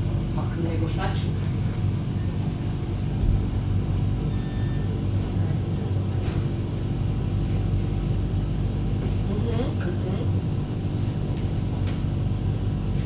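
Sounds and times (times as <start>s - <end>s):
tram rumble and hum: 0.0s - 4.3s.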